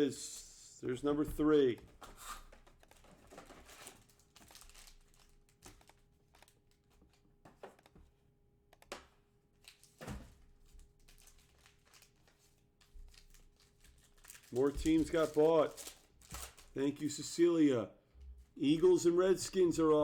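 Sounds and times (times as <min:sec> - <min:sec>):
card wrappers crinkling: 0:02.2 - 0:07.8, 0:09.6 - 0:17.2.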